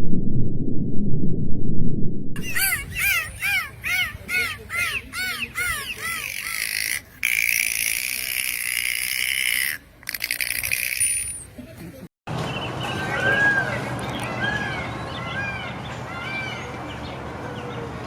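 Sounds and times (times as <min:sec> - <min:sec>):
animal giving short pitched calls: 0:02.4 - 0:10.9.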